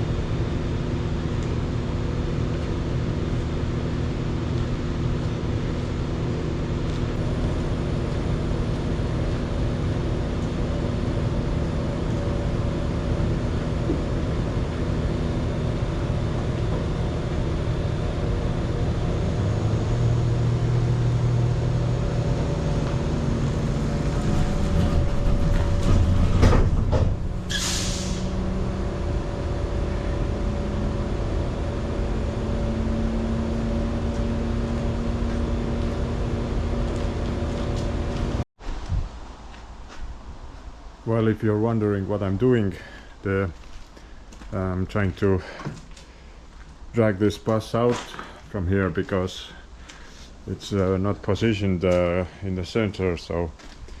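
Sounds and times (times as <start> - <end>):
heavy vehicle engine running: 0.0 - 38.5
clatter: 24.0 - 27.5
sharp hiss of released air: 27.5 - 28.4.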